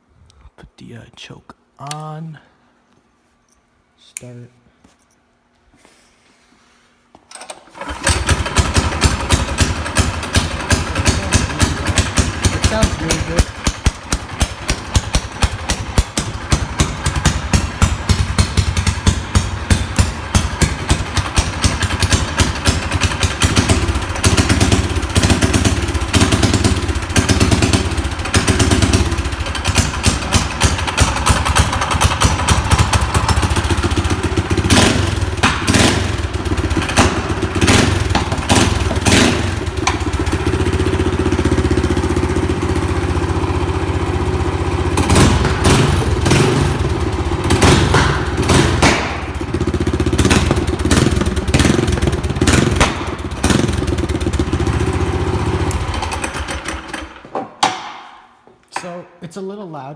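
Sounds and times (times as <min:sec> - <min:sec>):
small engine popping exhaust: 0:07.8 - 0:42.2, 0:44.8 - 0:57.0
exhaust cracks: 0:07.8 - 0:57.3.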